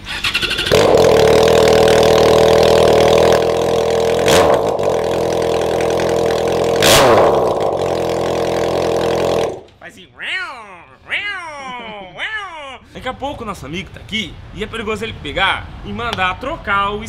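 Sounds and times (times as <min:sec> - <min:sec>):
loud raw motorcycle engine: 0:00.0 - 0:09.7
motorcycle starter cranking: 0:00.0 - 0:09.7.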